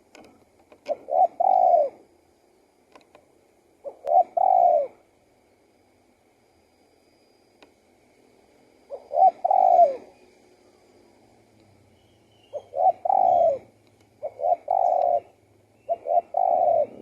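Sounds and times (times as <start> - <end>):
dove cooing: 0.8 - 2.1, 3.8 - 5.1, 8.9 - 10.2, 12.5 - 17.0.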